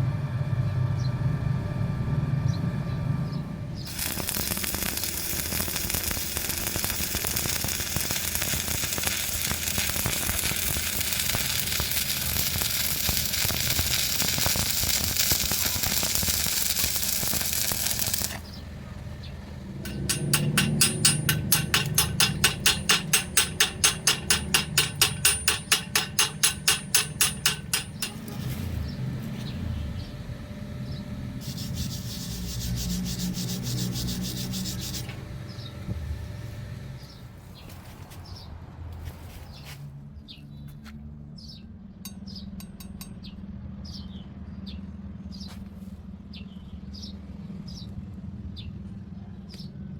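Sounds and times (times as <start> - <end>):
welding arc hissing and crackling: 3.9 - 18.6, 19.9 - 28.7, 31.4 - 35.7.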